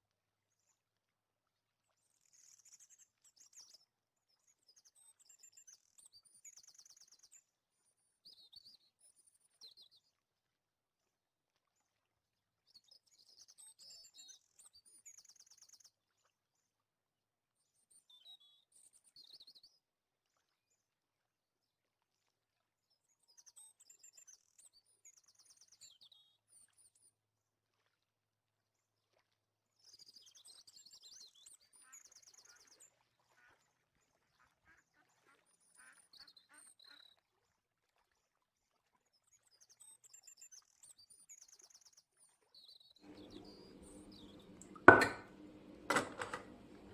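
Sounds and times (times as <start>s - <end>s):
faint bird chirping and trilling: 39.4s - 44.7s.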